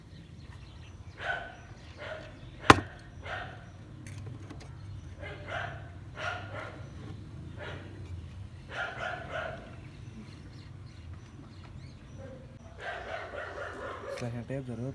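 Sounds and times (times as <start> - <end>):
dog barking: 1.1 - 3.7, 5.2 - 6.9, 7.6 - 8.0, 8.7 - 9.9, 12.2 - 14.4
sharp knock: 2.7 - 3.0.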